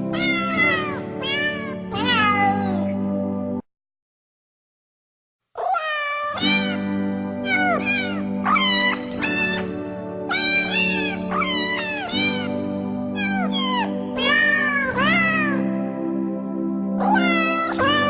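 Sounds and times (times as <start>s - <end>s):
cat meows: 0.1s - 2.9s, 5.6s - 9.7s, 10.3s - 12.6s, 13.2s - 15.6s, 17.0s - 18.0s.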